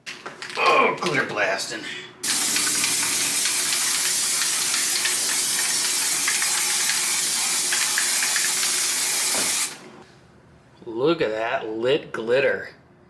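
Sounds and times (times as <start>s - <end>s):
aerosol spray can hissing: 2.2s - 9.9s.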